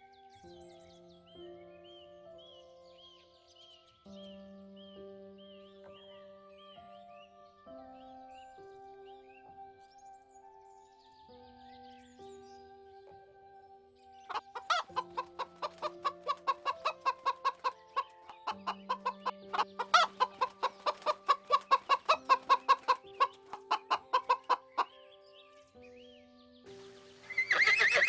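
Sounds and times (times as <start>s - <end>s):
soft background music: 0.0s - 28.0s
chicken clucking: 14.3s - 24.9s.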